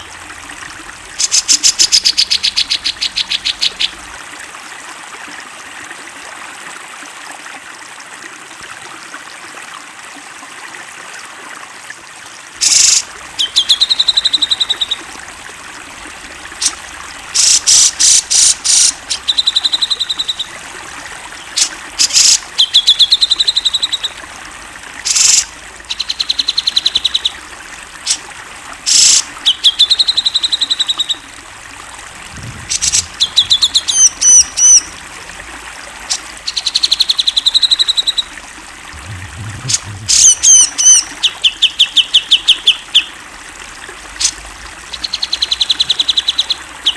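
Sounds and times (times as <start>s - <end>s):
water trickling: 0.0s - 10.7s, 12.5s - 46.9s
bird singing: 12.6s - 27.5s.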